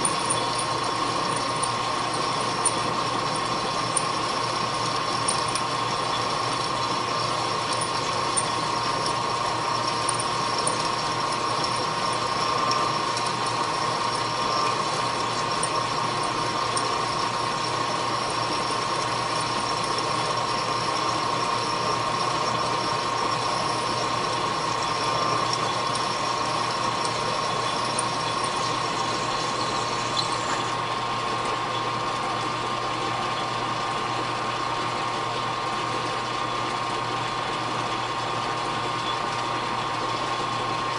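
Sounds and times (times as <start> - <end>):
machine tool whining: 0.0 - 31.2
machine humming: 0.0 - 33.4.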